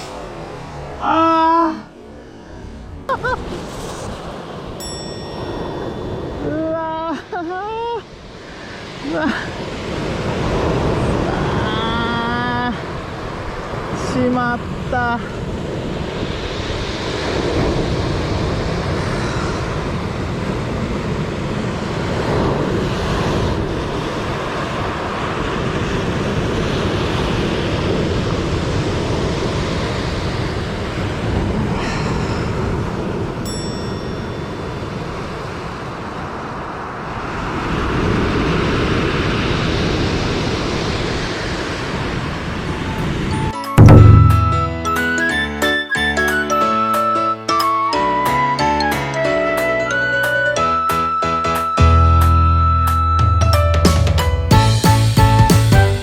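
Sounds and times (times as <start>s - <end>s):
wind on microphone: 0.0s - 7.3s, 8.0s - 45.4s
ocean surf breaking: 0.0s - 45.4s.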